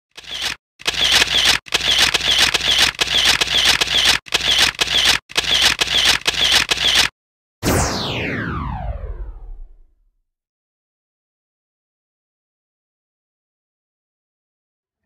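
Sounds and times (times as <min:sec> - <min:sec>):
rapid repeated clicking: 0:00.1 - 0:07.1.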